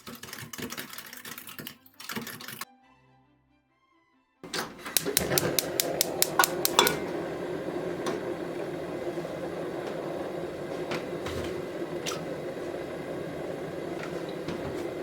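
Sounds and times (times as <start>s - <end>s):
utensils clicking on cookware: 0.0s - 2.6s, 4.4s - 7.4s, 10.7s - 12.6s.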